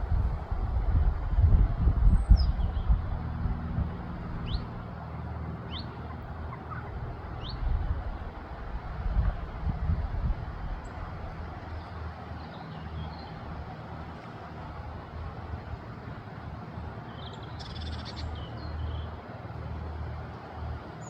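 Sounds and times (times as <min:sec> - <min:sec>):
wind rumble on microphone: 0:00.0 - 0:12.4.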